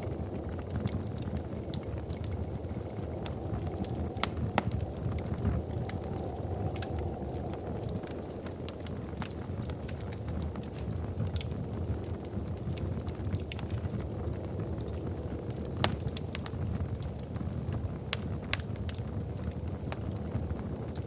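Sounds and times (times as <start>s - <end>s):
fire crackling and popping: 0.0s - 21.0s
wood fire flames rumbling: 0.0s - 21.0s.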